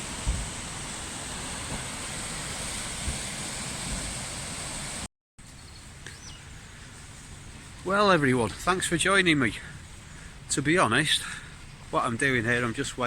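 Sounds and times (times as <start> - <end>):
outdoor rushing noise: 0.0 - 5.1
low thumps on microphone: 0.2 - 0.6.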